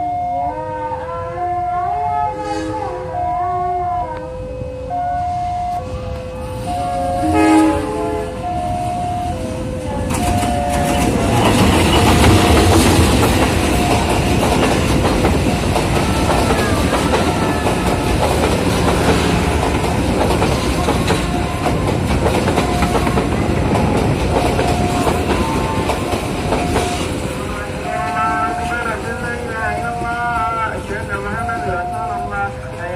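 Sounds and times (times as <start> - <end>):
train rumbling past: 0.0 - 32.9
wheels clattering over rail joints: 9.8 - 31.0.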